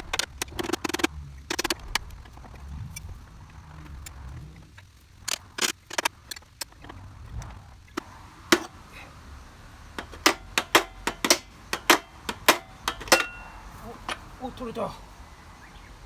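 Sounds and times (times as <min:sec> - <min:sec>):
sharp knocks and clicks on metal part: 0:08.4 - 0:08.9, 0:09.9 - 0:14.3.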